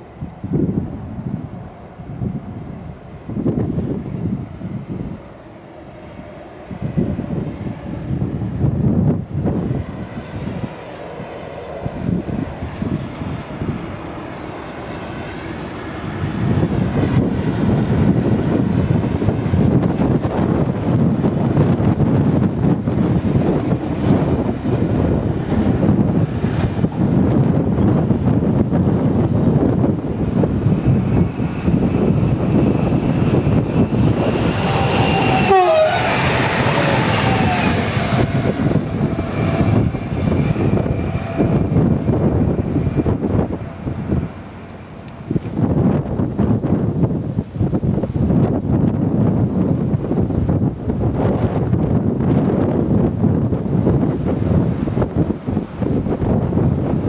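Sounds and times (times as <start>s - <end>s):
passenger train passing rumble: 0.0s - 57.0s
wind on the microphone: 0.0s - 57.0s
train whine dropping in pitch: 29.2s - 46.8s.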